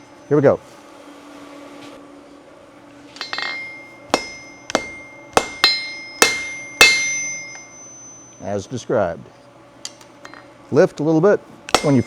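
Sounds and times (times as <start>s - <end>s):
metallic clatter: 3.2s - 8.4s, 11.7s - 12.0s
hammer striking steel on anvil: 3.2s - 8.7s, 11.7s - 12.0s.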